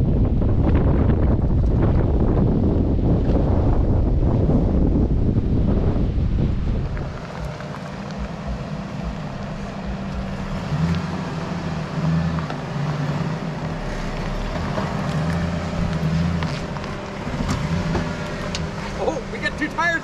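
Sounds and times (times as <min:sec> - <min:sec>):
car engine running low: 0:00.0 - 0:20.0
stones crunching under tyres: 0:06.8 - 0:11.4, 0:12.0 - 0:19.7.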